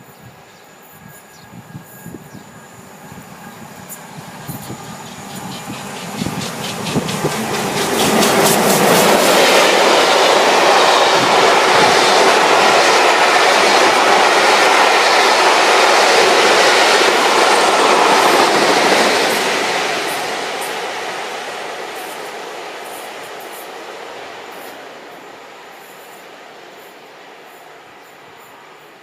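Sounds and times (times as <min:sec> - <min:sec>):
train wheels clattering over rails: 0:02.1 - 0:24.8.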